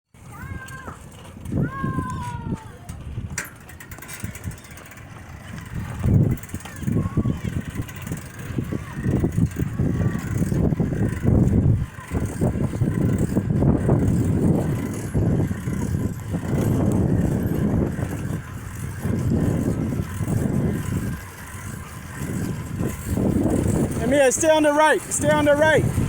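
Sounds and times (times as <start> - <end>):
wind buffeting microphone: 0.2 - 26.0.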